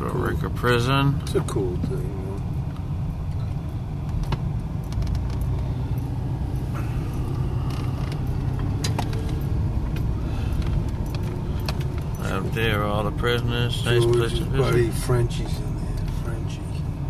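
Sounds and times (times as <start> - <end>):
car engine and road rumble: 0.0 - 17.0
light clicks and rattles: 1.2 - 14.6.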